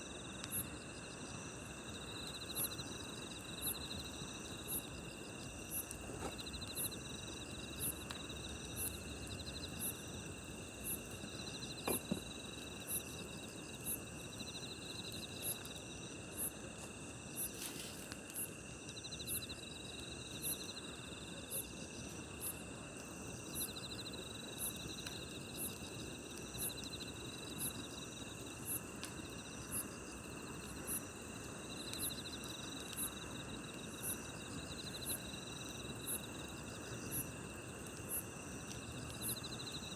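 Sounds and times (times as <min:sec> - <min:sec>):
campfire hiss: 0:00.0 - 0:39.9
high cricket chirp: 0:00.0 - 0:39.9
insect drone: 0:00.0 - 0:39.9
campfire pops: 0:05.5 - 0:14.1.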